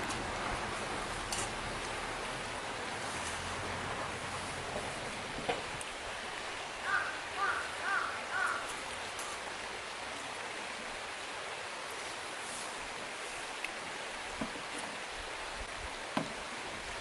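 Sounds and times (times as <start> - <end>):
bird calls: 6.8 - 8.8.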